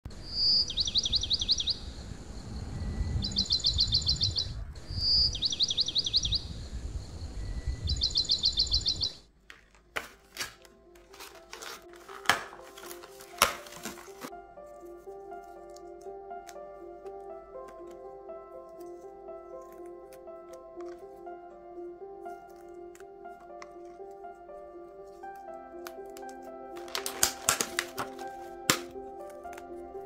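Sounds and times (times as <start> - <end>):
faint music tones: 0.1 - 30.0
small bird singing trills: 0.2 - 9.2
low rumbling noise: 1.7 - 8.9
plastic containers clicking: 26.2 - 29.7.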